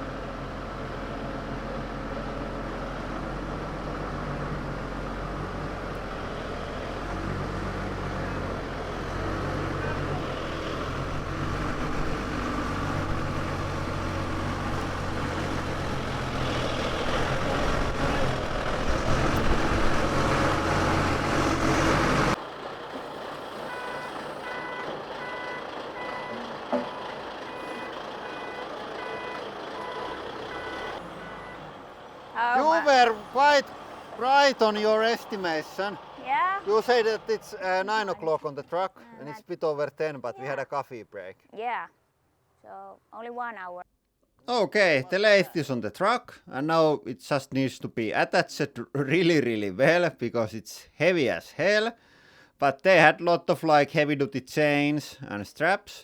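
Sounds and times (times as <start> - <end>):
forklift diesel engine revving: 0.0 - 38.4
reversing alarm beeping: 23.7 - 31.7.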